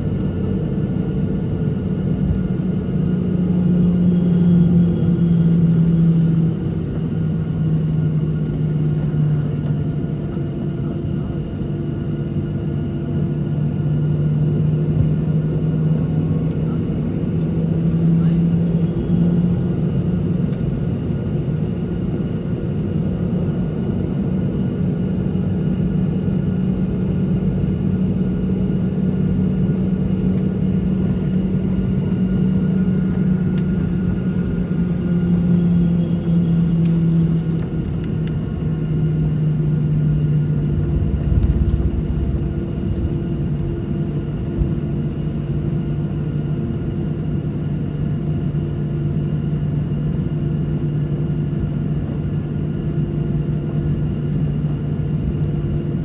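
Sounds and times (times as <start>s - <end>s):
jet engines droning in cabin: 0.0s - 56.0s
brief low rumble: 40.4s - 45.0s.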